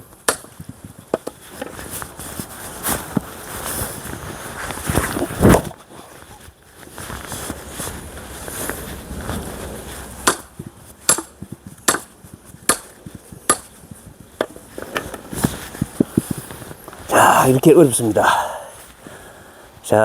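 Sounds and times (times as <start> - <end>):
axe chopping wood: 0.2 - 1.4, 10.2 - 13.8.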